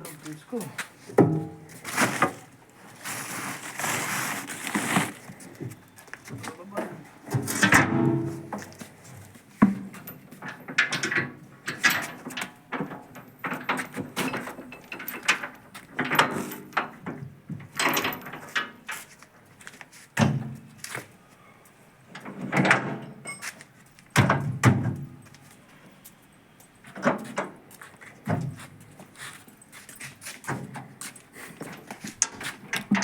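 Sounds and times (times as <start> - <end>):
thuds of sacks being loaded: 1.2 - 5.3.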